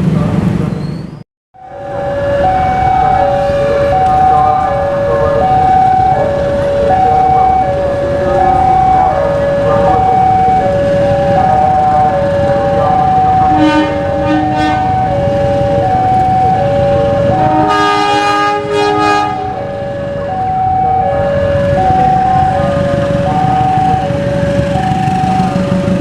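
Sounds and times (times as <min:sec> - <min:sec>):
passing train rumble: 0:00.0 - 0:26.0
two-tone warning alarm: 0:01.6 - 0:26.0
train horn blasts: 0:13.4 - 0:15.2, 0:17.1 - 0:19.7.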